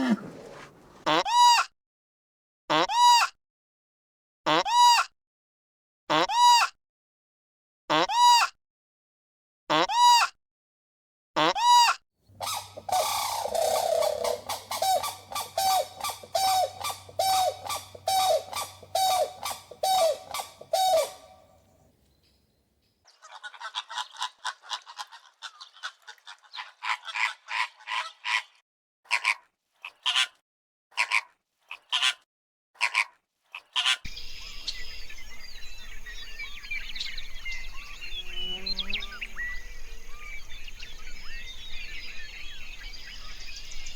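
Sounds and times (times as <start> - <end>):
faint birdsong: 0.0 - 1.0, 12.3 - 24.3, 34.1 - 43.9
bird calling loudly: 0.0 - 1.1, 12.3 - 21.8.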